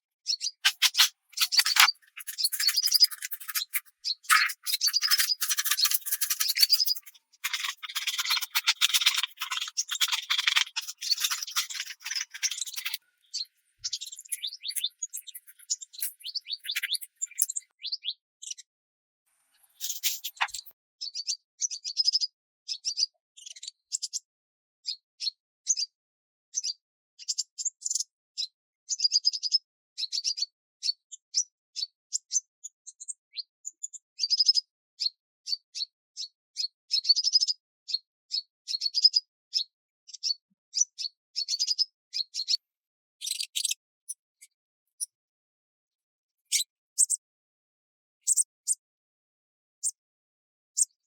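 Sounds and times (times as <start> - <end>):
songbirds chirping and trilling: 0.3 - 18.6, 43.2 - 45.1.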